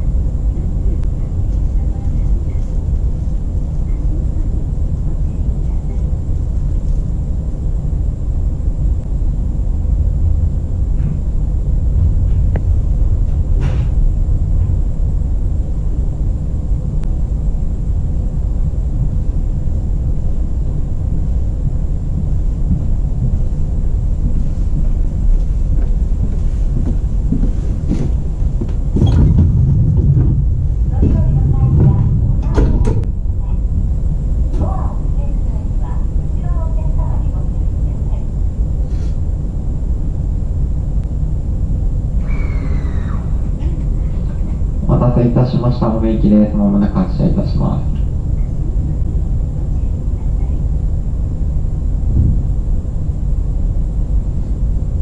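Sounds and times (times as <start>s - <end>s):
train equipment rumble and hum: 0.0s - 55.0s
faint high whine: 30.5s - 55.0s.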